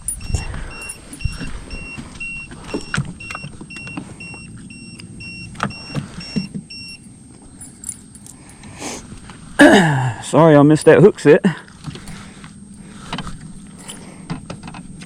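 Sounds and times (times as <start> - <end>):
high electronic beeping: 0.0 - 7.1.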